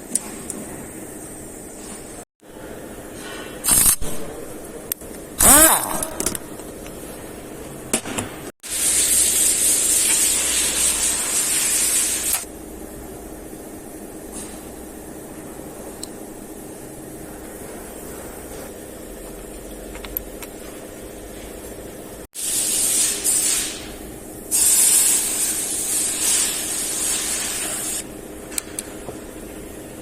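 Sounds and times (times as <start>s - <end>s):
low shop hum: 0.0s - 30.0s
pressurized nozzle hissing spray: 8.7s - 12.4s, 22.4s - 28.1s.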